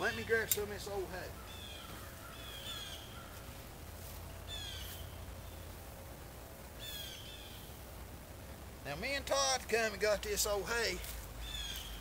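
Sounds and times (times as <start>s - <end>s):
bird calling: 0.0s - 3.6s, 4.5s - 5.7s, 6.8s - 7.8s, 10.9s - 12.0s
low steady rumble: 0.0s - 12.0s.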